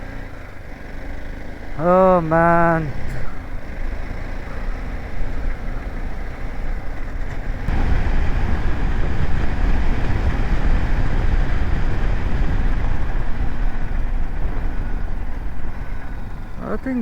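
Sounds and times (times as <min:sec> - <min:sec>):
motorcycle road noise: 0:00.0 - 0:17.0
wind rush: 0:07.3 - 0:16.8.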